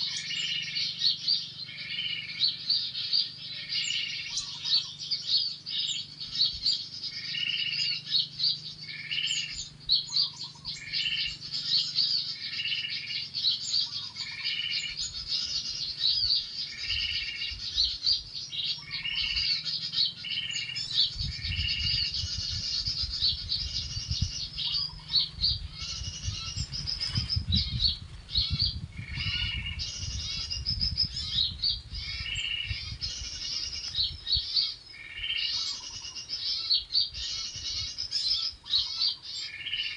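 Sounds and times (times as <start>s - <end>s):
songbirds chirping: 0.0s - 39.9s
low rumble: 20.8s - 34.4s.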